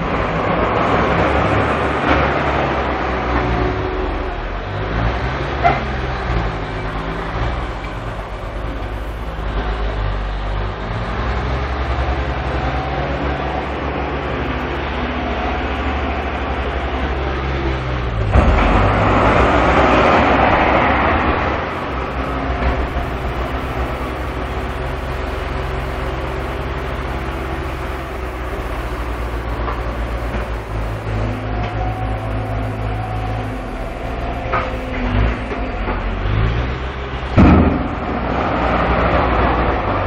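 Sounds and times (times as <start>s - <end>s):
heavy diesel engines running: 0.0s - 40.0s
loud rushing hiss: 21.2s - 35.3s.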